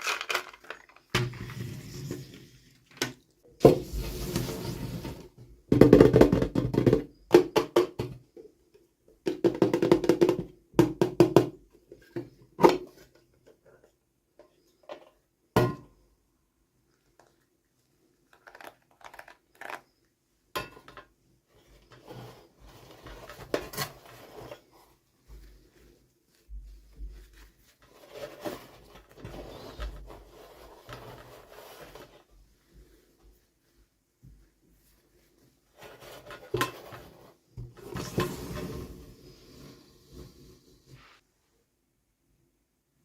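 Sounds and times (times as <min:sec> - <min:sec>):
packaging rustling and crinkling: 0:00.0 - 0:01.4.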